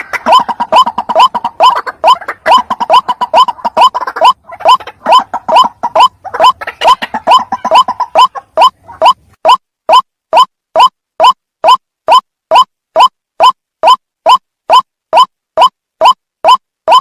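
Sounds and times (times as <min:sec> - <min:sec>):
waterhen calling: 0:00.0 - 0:09.6.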